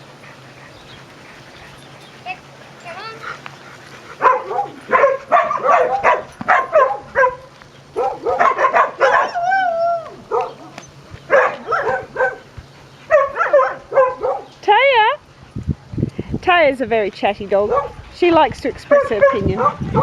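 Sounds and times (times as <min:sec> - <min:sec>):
dog woofing and yipping: 0:04.2 - 0:12.4, 0:13.1 - 0:14.5
dog whining: 0:08.0 - 0:12.4.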